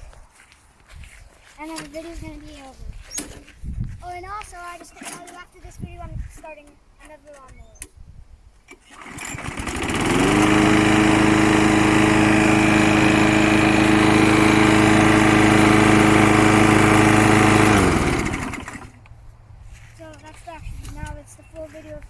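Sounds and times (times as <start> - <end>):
lawnmower engine: 8.6 - 22.0.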